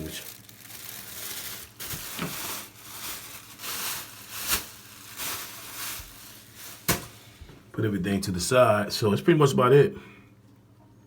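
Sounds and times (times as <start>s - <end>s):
plastic bag rustling: 0.0s - 7.6s.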